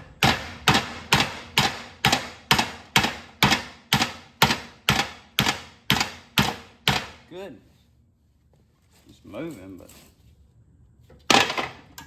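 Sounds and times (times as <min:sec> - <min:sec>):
hammer striking metal shaft: 0:00.0 - 0:07.2.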